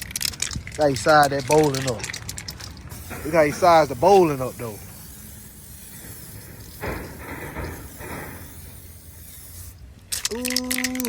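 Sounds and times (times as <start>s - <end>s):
crackling noise: 0.0s - 11.0s
aerosol can spraying hiss: 2.9s - 10.0s
voice saying ooh: 10.3s - 11.0s.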